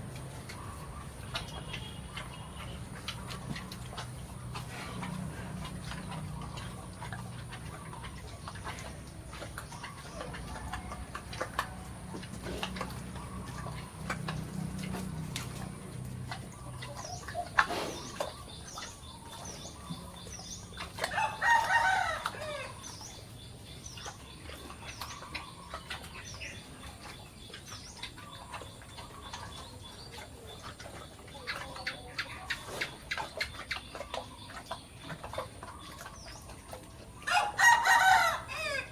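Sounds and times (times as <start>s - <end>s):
chickens clucking: 0.0s - 38.9s
rooster crowing: 21.1s - 22.8s, 37.3s - 38.9s.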